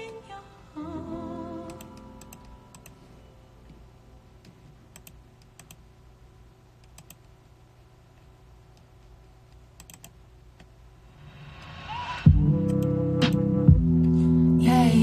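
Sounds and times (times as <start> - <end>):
low steady hum: 0.0 - 15.0
rising hiss: 11.1 - 12.3.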